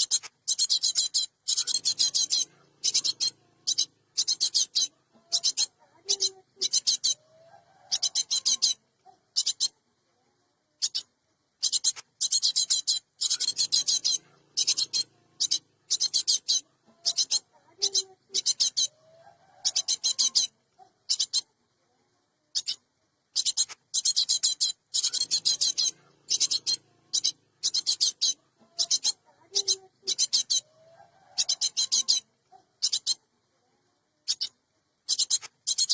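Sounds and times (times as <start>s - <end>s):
bird harsh chattering calls: 0.0s - 7.2s, 7.8s - 8.8s, 11.6s - 20.5s, 23.4s - 33.2s, 35.1s - 35.9s.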